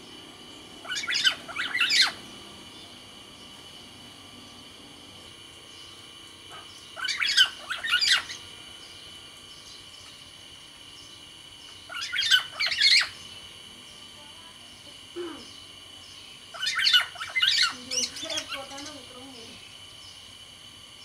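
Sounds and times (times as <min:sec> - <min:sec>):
faint high hum: 0:00.0 - 0:21.0
oriole calling: 0:00.8 - 0:03.0, 0:06.5 - 0:08.5, 0:11.7 - 0:13.2, 0:16.4 - 0:19.6.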